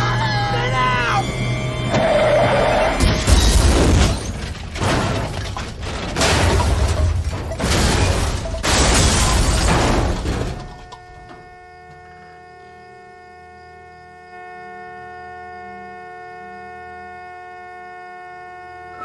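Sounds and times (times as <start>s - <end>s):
film score music: 0.0s - 3.4s
loud crashes and smashing impacts: 2.9s - 11.0s.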